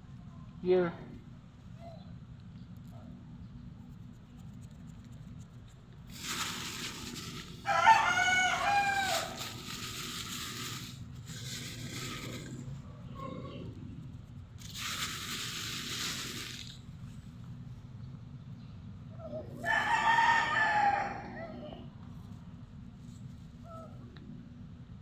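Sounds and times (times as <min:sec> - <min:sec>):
rooster crowing: 0:06.4 - 0:10.8, 0:19.6 - 0:22.0.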